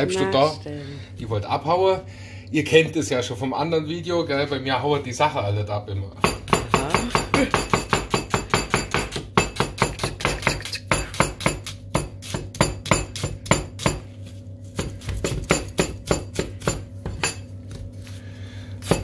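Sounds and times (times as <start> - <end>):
knife chopping on cutting board: 6.2 - 14.1, 14.7 - 17.4, 18.8 - 19.0.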